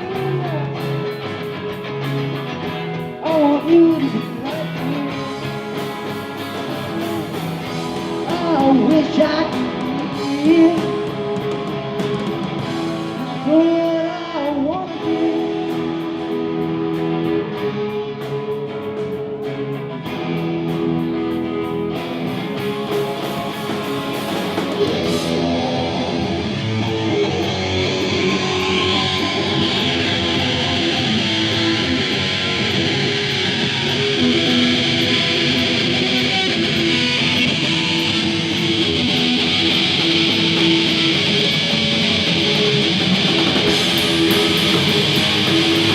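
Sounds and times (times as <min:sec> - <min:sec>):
person singing: 0:00.0 - 0:01.2, 0:03.2 - 0:05.9, 0:07.9 - 0:12.0, 0:12.9 - 0:16.8, 0:23.9 - 0:45.9
live rock band playing: 0:00.0 - 0:45.9.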